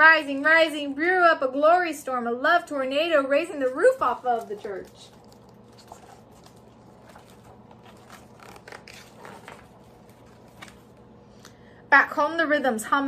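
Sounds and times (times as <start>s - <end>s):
low steady hum: 0.0s - 13.0s
book pages rustling: 3.7s - 11.2s.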